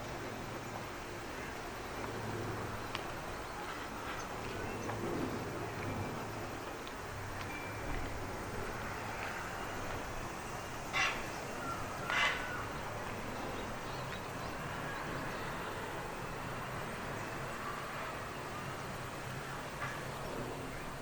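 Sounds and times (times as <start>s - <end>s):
outdoor background noise: 0.0s - 21.0s
bird harsh calls: 10.9s - 12.9s.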